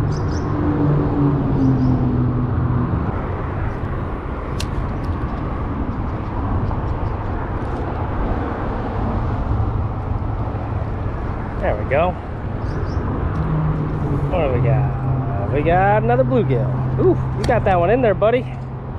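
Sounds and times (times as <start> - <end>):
highway traffic roar: 0.0 - 18.9
vehicle engine hum: 0.0 - 18.9
sharp click: 4.5 - 5.4.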